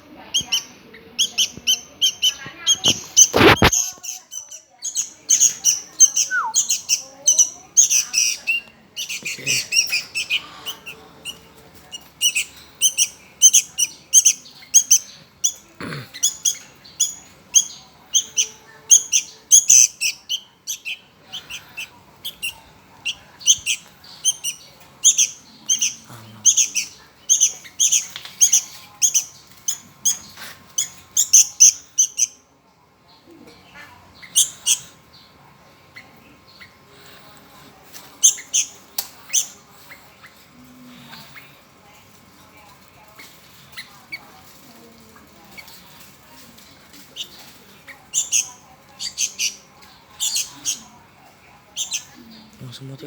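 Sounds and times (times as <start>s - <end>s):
young bird begging chirps: 0.3s - 15.6s, 16.2s - 32.4s, 34.2s - 35.0s, 38.2s - 39.6s, 47.2s - 51.0s, 51.7s - 52.2s.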